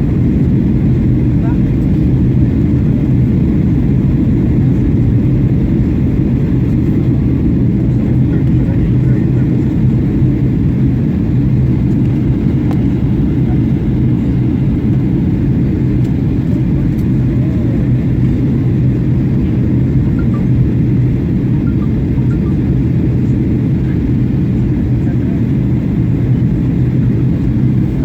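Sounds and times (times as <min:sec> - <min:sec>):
airplane cabin engine rumble: 0:00.0 - 0:28.0.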